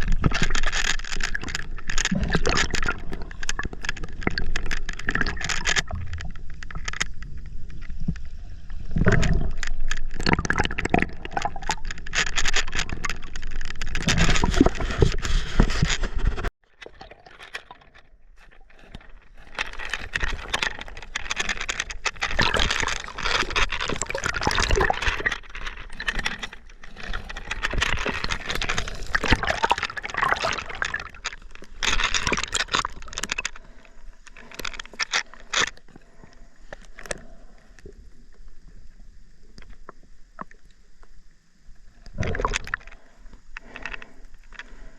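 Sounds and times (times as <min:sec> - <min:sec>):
hissy water bubbling: 0:18.7 - 0:39.4
river water splashing and gurgling: 0:19.4 - 0:33.9.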